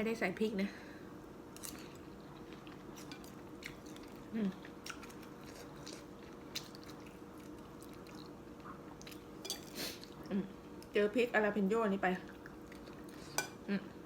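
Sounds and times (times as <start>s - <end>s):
soft chewing: 1.5s - 10.9s, 12.2s - 14.0s.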